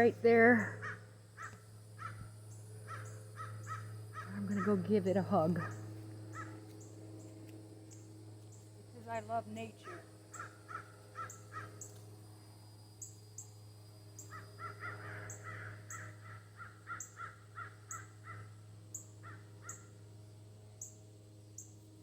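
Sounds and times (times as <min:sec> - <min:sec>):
crows cawing: 0:00.6 - 0:04.8, 0:05.6 - 0:06.8, 0:09.8 - 0:11.9, 0:14.3 - 0:18.6, 0:19.2 - 0:19.9.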